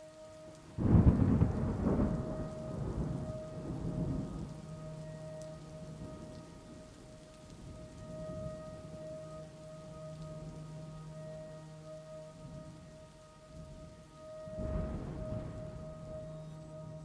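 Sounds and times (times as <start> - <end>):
faint low drone: 0.0 - 17.0
steady rain: 0.0 - 17.0
thunderclap: 14.5 - 16.3.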